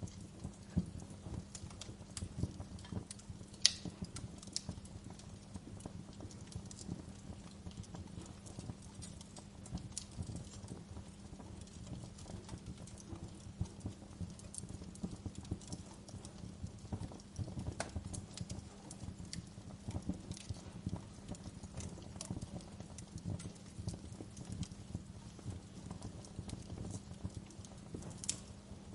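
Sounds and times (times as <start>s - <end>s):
wood fire crackling: 0.0s - 28.9s.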